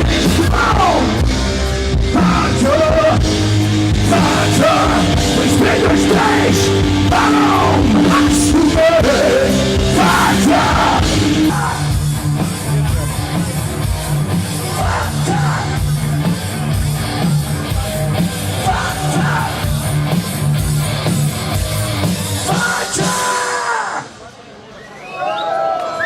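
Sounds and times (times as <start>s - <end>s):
bass guitar: 0.0s - 23.3s
electric guitars: 0.0s - 23.3s
drum hits: 1.9s - 12.3s.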